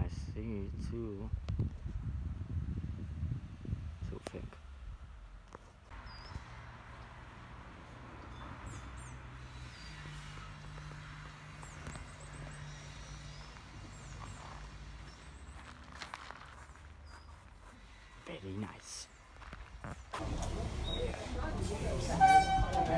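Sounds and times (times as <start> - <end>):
small birds chirping: 5.9 - 7.2, 7.8 - 21.4.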